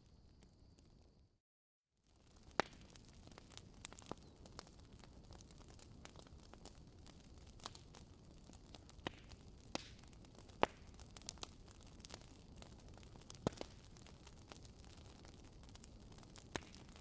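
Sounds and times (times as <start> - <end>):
logs popping and snapping: 13.3 - 13.9, 16.3 - 17.0.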